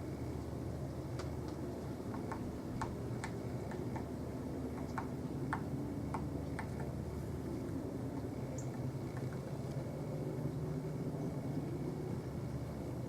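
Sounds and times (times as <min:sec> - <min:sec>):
steady low rumble: 0:00.0 - 0:13.0
woodpecker tapping on wood: 0:01.2 - 0:04.1, 0:04.7 - 0:07.0.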